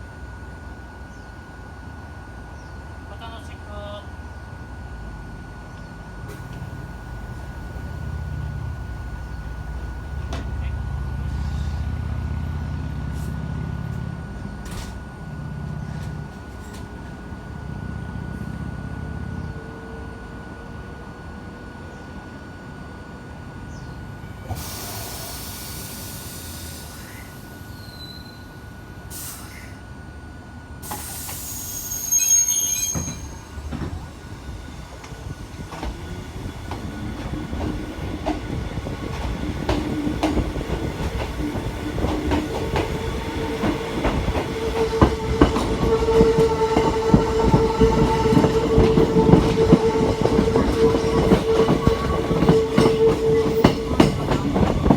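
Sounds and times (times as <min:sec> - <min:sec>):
electric train running: 0:03.2 - 0:21.5, 0:30.0 - 0:54.9
rail clicks: 0:06.3 - 0:10.8, 0:32.7 - 0:54.9.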